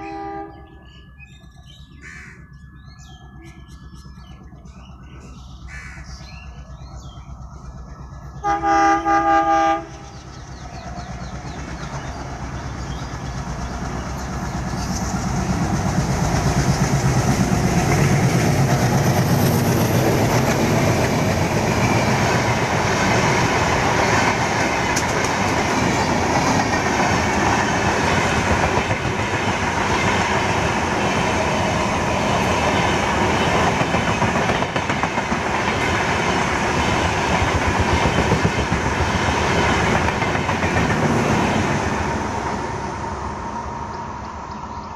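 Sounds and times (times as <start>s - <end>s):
diesel locomotive passing: 0.0s - 44.9s
train wheels clattering over rail joints: 10.4s - 41.8s.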